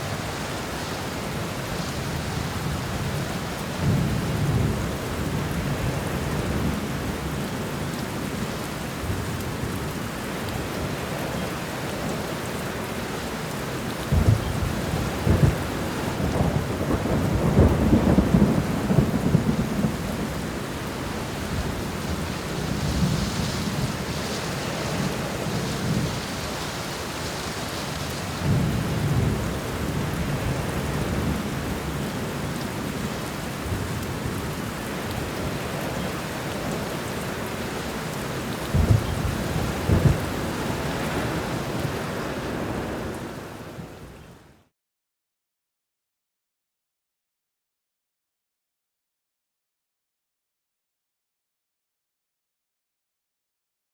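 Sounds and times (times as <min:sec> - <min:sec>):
steady rain: 0:00.0 - 0:44.7
thunder rumbling: 0:14.1 - 0:26.9, 0:38.4 - 0:43.1.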